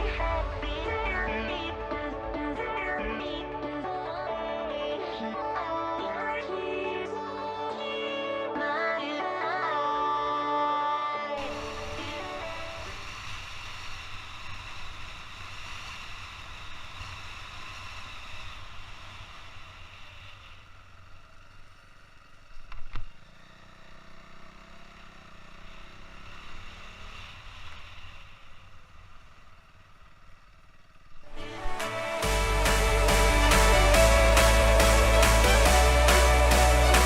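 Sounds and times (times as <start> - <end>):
wind rumble: 0.0 - 3.6
motorcycle engine running: 0.0 - 7.4, 11.4 - 37.0.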